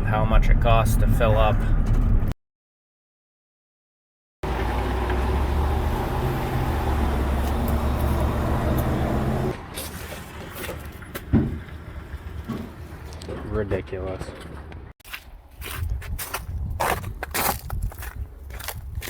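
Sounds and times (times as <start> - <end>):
truck engine running: 4.4 - 9.6.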